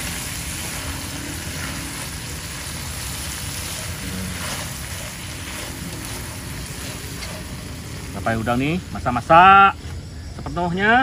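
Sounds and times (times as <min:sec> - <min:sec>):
spatula stirring in a wok: 0:00.0 - 0:08.2
prawns sizzling in a wok: 0:00.0 - 0:11.0.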